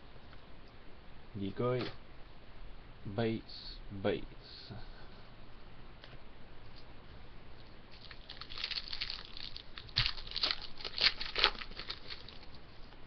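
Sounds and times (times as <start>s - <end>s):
wrapper crinkling: 7.9s - 12.6s.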